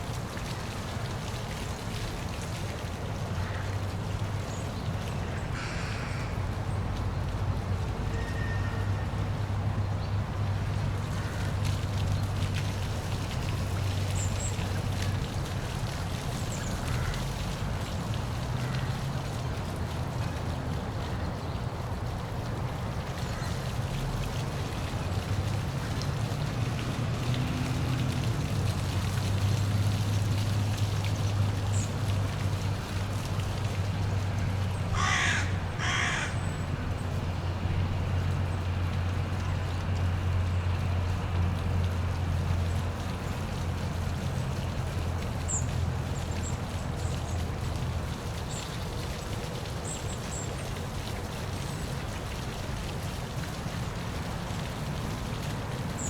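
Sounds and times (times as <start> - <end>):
waterfall rushing: 22.6 - 38.0.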